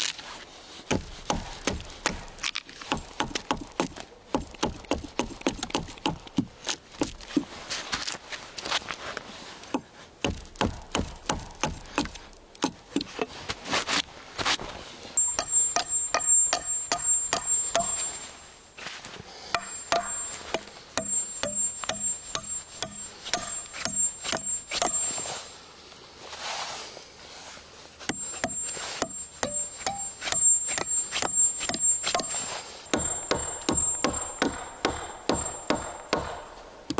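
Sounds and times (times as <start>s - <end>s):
tool striking wood: 0.9s - 6.5s, 9.7s - 13.1s, 15.2s - 18.4s, 19.5s - 25.3s, 28.1s - 36.9s.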